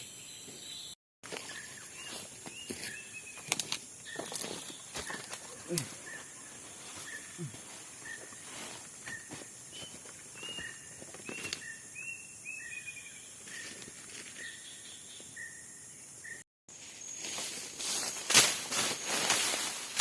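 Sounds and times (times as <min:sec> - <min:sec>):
insect hiss: 0:07.6 - 0:20.0.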